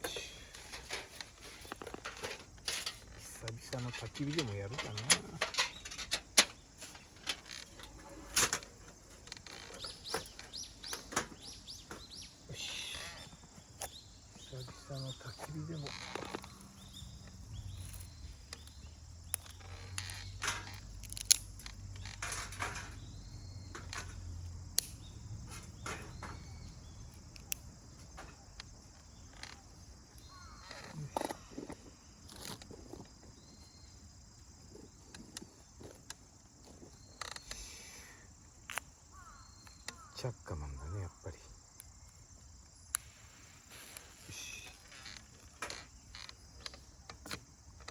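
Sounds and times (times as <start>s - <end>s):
crickets trilling: 0.0s - 47.9s
clicks and knocks of handling: 0.6s - 12.2s.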